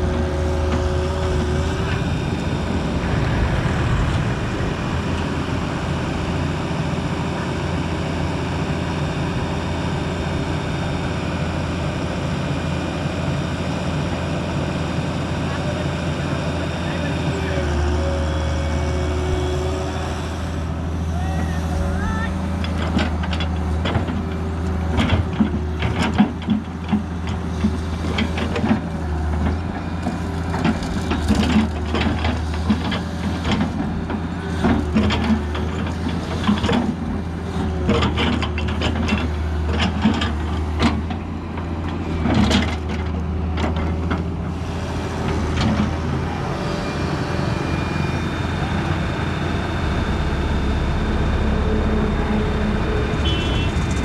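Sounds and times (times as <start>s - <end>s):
excavator engine running: 0.0s - 54.0s.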